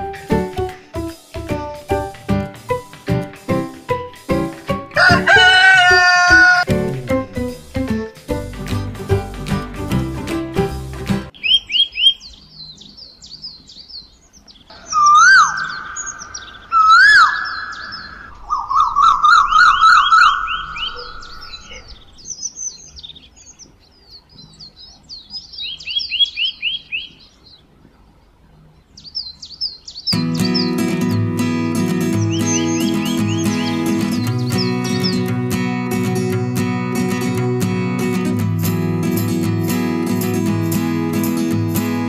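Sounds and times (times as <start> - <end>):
bird trill: 5.0 - 6.7, 11.3 - 27.6, 28.8 - 35.4
small birds chirping: 11.3 - 35.5
whistled bird calls: 11.4 - 13.4, 14.7 - 23.5, 32.1 - 35.3.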